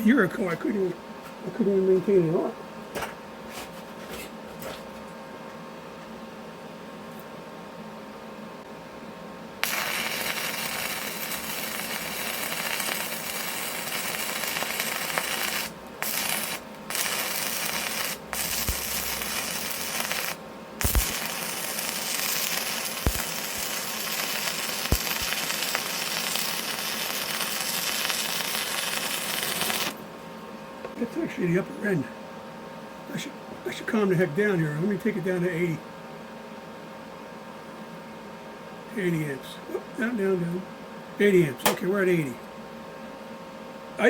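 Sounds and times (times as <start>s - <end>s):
welding arc crackling: 9.6s - 30.0s.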